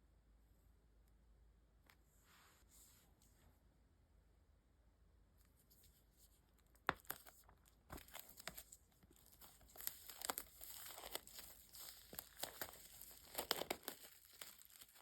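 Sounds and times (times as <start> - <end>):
wrapping being torn and crinkled: 6.9 - 15.0.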